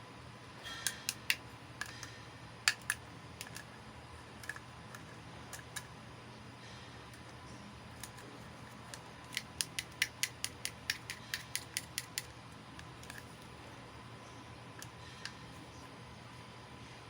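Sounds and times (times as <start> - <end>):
plastic toy pieces clicking: 0.8 - 2.1, 2.7 - 3.7, 4.4 - 5.9, 8.9 - 12.3.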